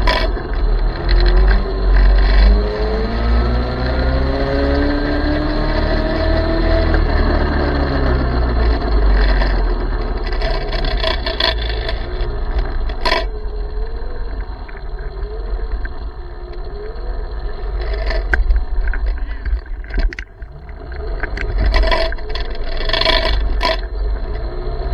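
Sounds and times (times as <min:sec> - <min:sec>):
electric minibike motor whine: 0:00.0 - 0:24.9
rough ground noise: 0:00.0 - 0:24.9
wind rumble on microphone: 0:00.0 - 0:24.9.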